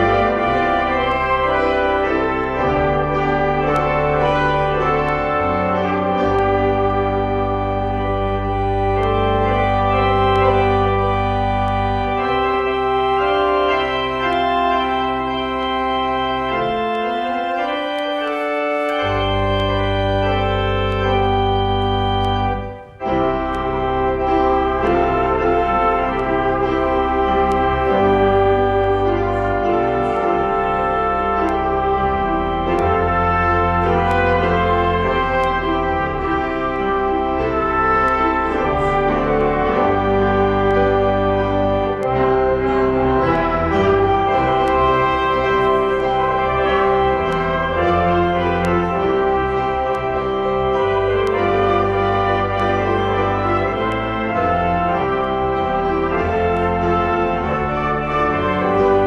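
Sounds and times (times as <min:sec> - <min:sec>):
deep organ pedal bass: 0:00.0 - 0:59.0
organ playing sustained chords: 0:00.0 - 0:59.0.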